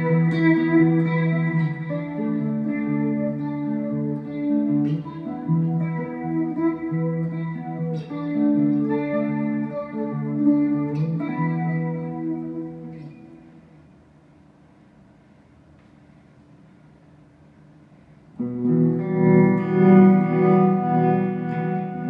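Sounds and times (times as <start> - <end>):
electric guitar strummed chords: 0.0 - 13.8, 18.4 - 22.0.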